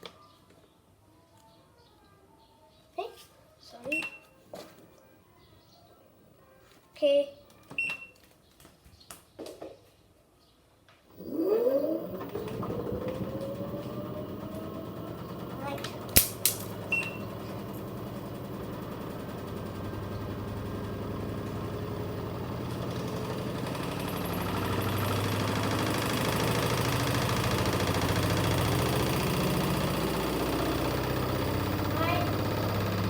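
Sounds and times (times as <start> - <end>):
washing machine drum spinning: 11.2 - 33.0
sharp clicks: 15.8 - 17.2.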